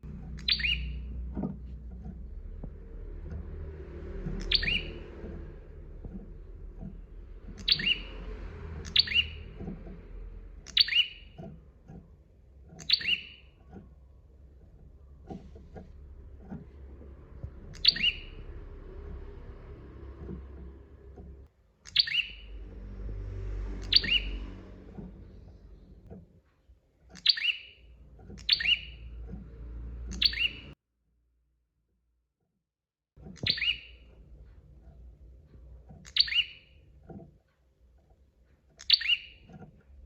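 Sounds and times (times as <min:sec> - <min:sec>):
low background rumble: 0:00.0 - 0:21.5, 0:22.1 - 0:27.1
bird high sharp chirps: 0:00.3 - 0:01.2, 0:04.2 - 0:05.4, 0:07.5 - 0:09.8, 0:10.6 - 0:11.5, 0:12.8 - 0:13.5, 0:17.6 - 0:19.2, 0:21.9 - 0:22.8, 0:23.8 - 0:25.1, 0:27.2 - 0:29.2, 0:30.1 - 0:30.8, 0:33.4 - 0:34.1, 0:36.0 - 0:36.8, 0:38.8 - 0:39.5.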